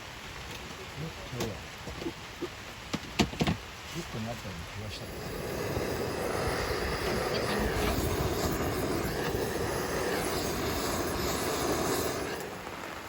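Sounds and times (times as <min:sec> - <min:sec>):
gas torch burner roaring: 0:04.8 - 0:13.0.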